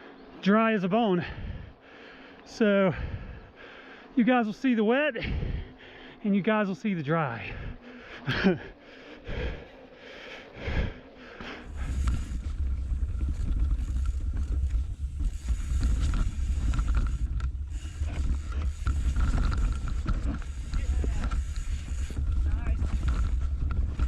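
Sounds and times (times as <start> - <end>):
bike tyres rolling over ground: 10.7 - 24.0
wind rushing over microphone: 11.6 - 24.0.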